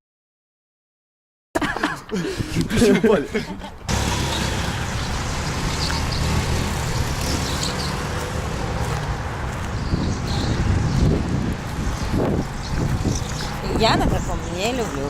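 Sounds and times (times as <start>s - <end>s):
vehicle engine and road noise: 3.3s - 15.0s.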